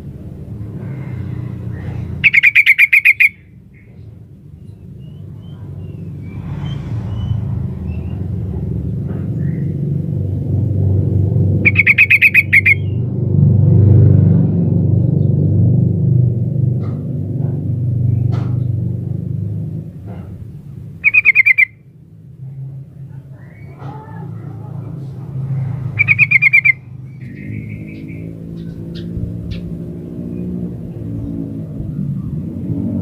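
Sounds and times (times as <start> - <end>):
bird chattering call: 2.2 - 4.0, 11.6 - 13.0, 21.0 - 21.8, 26.0 - 29.6
low rumble: 4.4 - 11.7.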